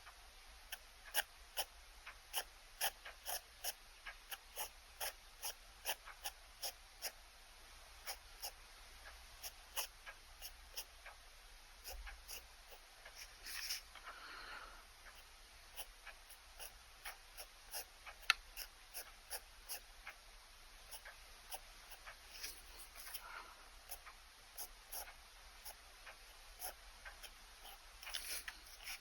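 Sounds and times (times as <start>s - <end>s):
pen sketching on paper: 0.7s - 1.7s, 2.3s - 7.2s, 8.0s - 8.6s, 9.4s - 10.9s, 11.8s - 13.8s, 15.1s - 19.9s, 20.9s - 23.3s, 24.6s - 25.8s, 26.6s - 29.0s.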